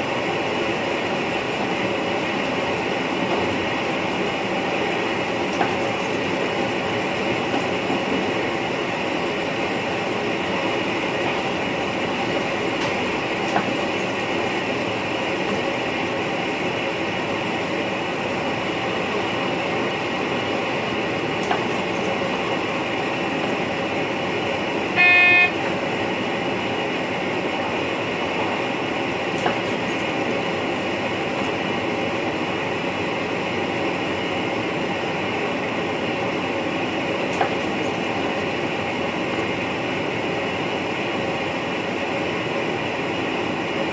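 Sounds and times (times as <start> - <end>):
electric train running noise: 0.0 - 43.9
short loud pitched tone: 25.0 - 25.6.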